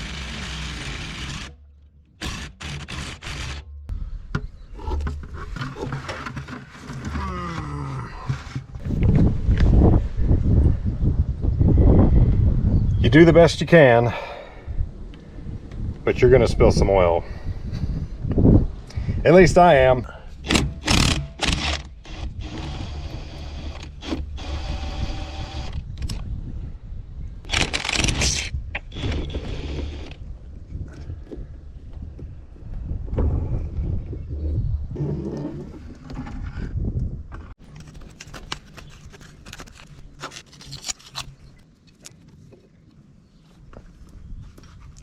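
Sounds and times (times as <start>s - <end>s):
low rumble: 3.5s - 5.6s.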